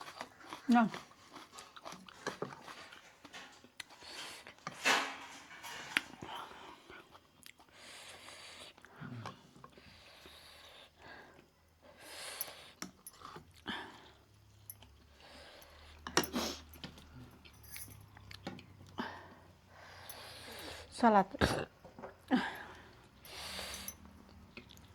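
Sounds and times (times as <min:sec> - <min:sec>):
person chewing: 0:00.0 - 0:04.1
clinks of dishes: 0:04.7 - 0:06.6.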